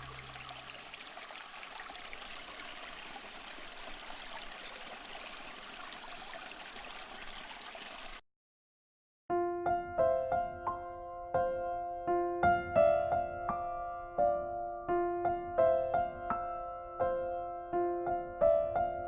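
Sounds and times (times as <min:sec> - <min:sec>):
river water rushing: 0:00.0 - 0:08.1
piano music: 0:09.3 - 0:19.0.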